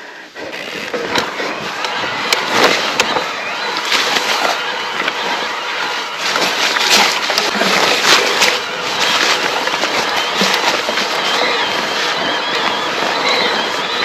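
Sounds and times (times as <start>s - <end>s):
tyres crunching on loose stones: 0.7s - 14.0s
bike rattling clicks and knocks: 6.2s - 14.0s.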